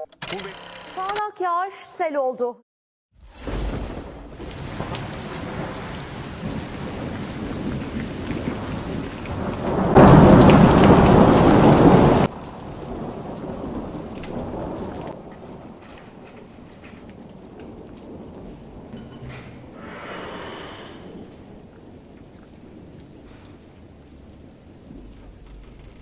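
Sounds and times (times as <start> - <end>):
heavy rain pouring: 3.2 - 26.0
rumbling thunder: 3.2 - 26.0.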